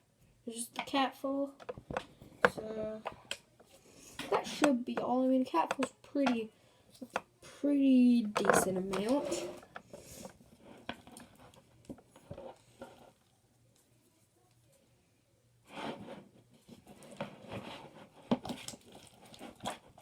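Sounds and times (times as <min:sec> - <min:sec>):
utensil scraping slime in plastic container: 0:08.4 - 0:09.7.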